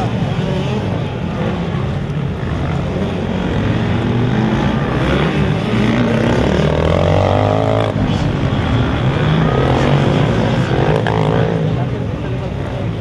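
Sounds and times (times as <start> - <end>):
motorbike revving up: 0.0 - 12.2
motocross bike engines droning: 0.0 - 13.0.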